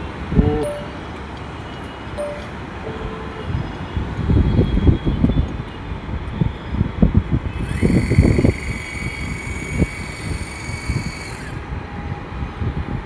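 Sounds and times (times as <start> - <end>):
high-pitched whine: 0.0 - 7.0
street traffic rumbling: 0.0 - 13.0.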